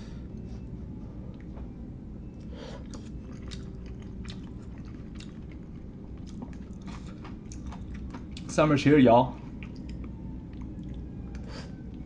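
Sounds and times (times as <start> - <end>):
close chewing of food: 2.4 - 8.6, 9.3 - 12.0.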